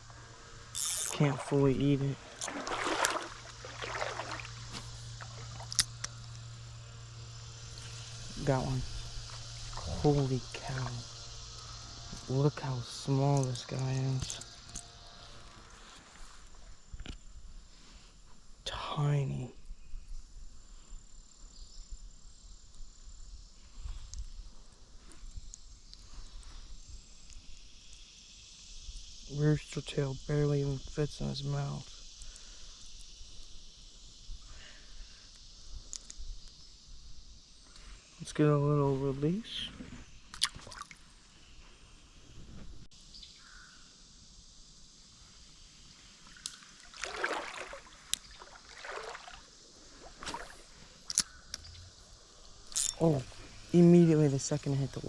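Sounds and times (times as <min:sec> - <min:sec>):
insects trilling: 0:00.0 - 0:55.0
creek trickling: 0:00.2 - 0:15.7, 0:40.4 - 0:41.0, 0:46.2 - 0:55.0
water splashing: 0:00.9 - 0:06.0, 0:46.3 - 0:51.1
low rumbling: 0:50.1 - 0:54.4.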